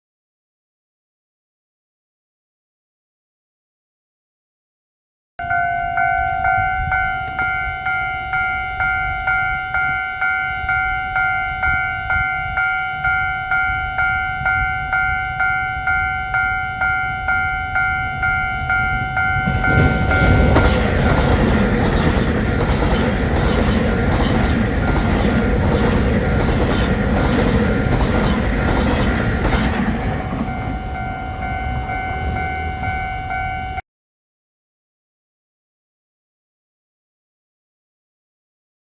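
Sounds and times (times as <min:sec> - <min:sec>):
level crossing warning bell: 0:05.4 - 0:33.8
train wheels clattering over rails: 0:18.6 - 0:33.0.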